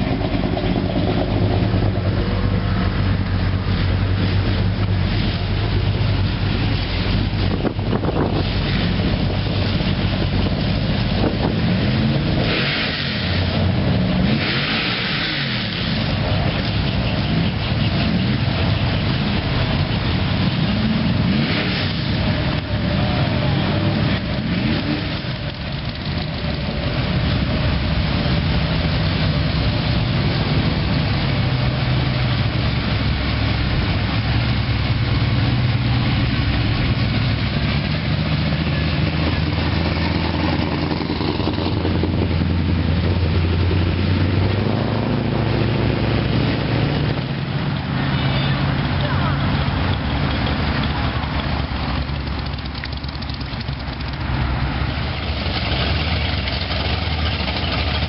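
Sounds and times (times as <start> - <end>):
car engine idling: 0.0 - 12.5, 15.0 - 58.0.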